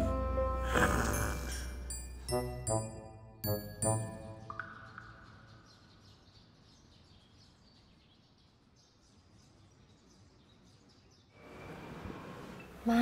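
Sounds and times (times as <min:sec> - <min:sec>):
music cue: 0:00.0 - 0:05.3
faint birds chirping: 0:04.4 - 0:13.0.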